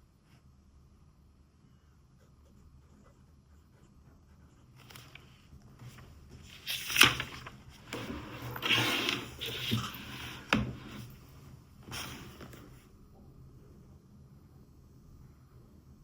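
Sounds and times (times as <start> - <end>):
rustling and scraping: 4.8 - 12.9.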